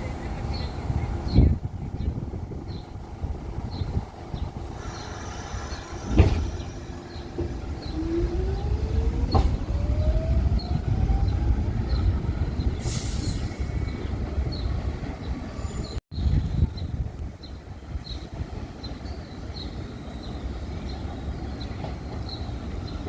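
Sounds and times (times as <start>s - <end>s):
subway train rumble: 0.0s - 23.0s
thump: 6.0s - 6.7s.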